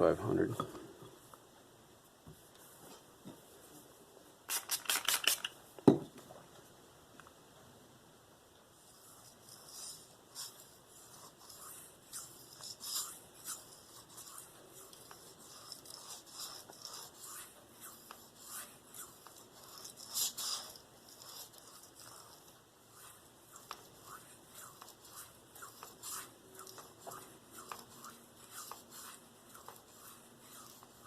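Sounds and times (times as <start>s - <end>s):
knife blade scraping on stone: 11.5s - 22.5s.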